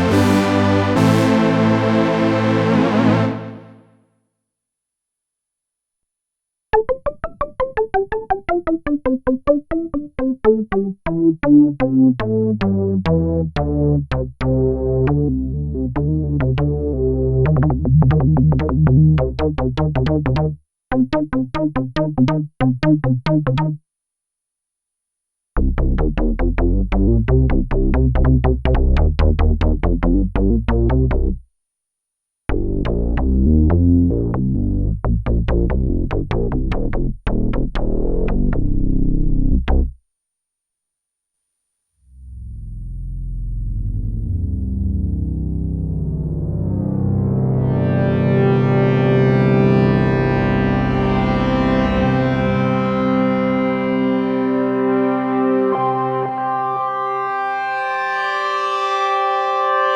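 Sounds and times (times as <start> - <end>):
deep synth bass: 0.0 - 3.7, 11.1 - 20.6, 25.6 - 31.4, 32.5 - 40.0, 42.1 - 53.8
synthesizer sequenced patterns: 0.0 - 3.8, 6.7 - 20.4.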